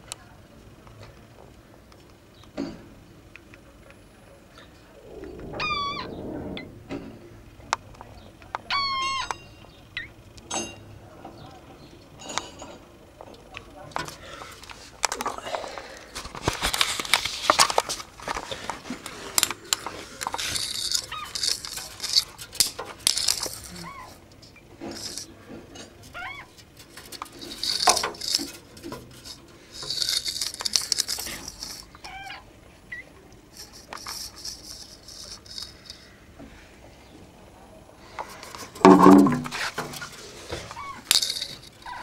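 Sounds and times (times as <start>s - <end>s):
scraping and clattering: 16.4s - 23.8s, 24.8s - 25.3s, 26.6s - 31.9s, 33.6s - 36.1s, 38.2s - 42.0s.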